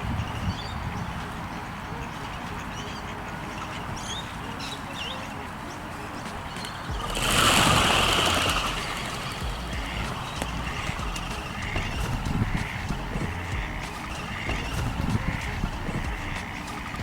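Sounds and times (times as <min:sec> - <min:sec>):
small birds chirping: 0:00.0 - 0:17.0
rushing noise: 0:05.7 - 0:17.0.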